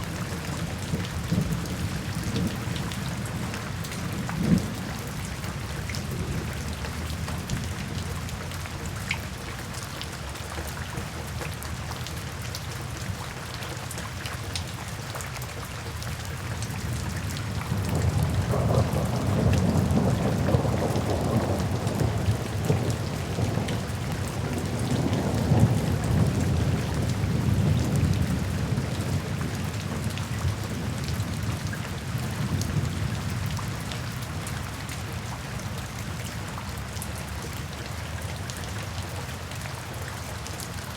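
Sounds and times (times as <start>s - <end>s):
steady rainfall with ticking drops: 0.0s - 40.9s
rumble of thunder: 0.1s - 8.3s, 16.8s - 33.8s.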